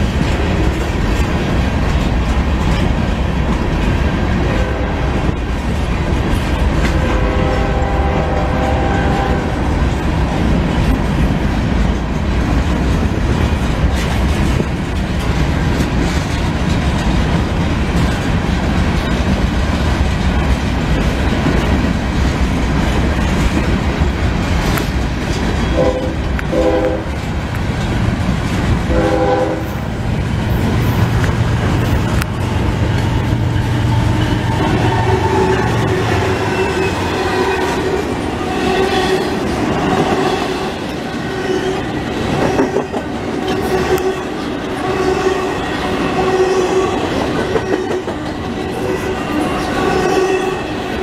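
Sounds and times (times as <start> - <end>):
freight cars rumbling and clattering: 0.0 - 51.0
locomotive engine drone: 0.0 - 51.0
train horn blasts: 4.4 - 5.1, 6.8 - 9.8, 25.6 - 27.2, 28.9 - 30.0, 34.2 - 39.3.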